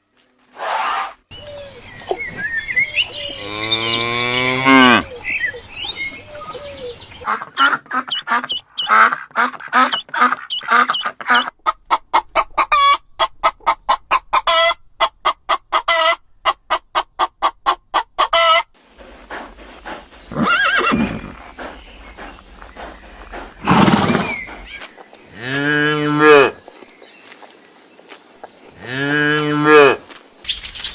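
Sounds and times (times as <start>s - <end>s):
hen clucking: 6.3s - 24.9s
horse whinnying and snorting: 20.3s - 21.4s, 23.6s - 24.5s.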